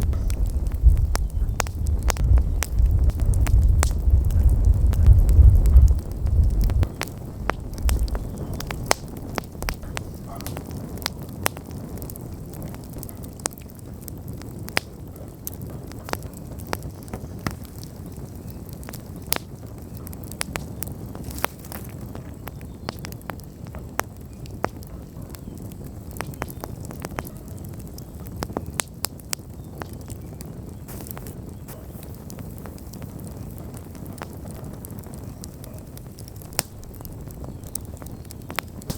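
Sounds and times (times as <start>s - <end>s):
low rumble: 0.0s - 10.5s
bonfire crackling and popping: 0.0s - 38.9s
hiss of flames: 0.0s - 38.9s.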